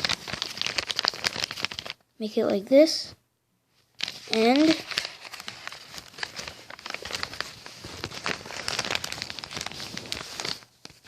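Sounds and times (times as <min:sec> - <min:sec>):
paper being folded and creased: 0:00.0 - 0:02.0, 0:03.9 - 0:11.0.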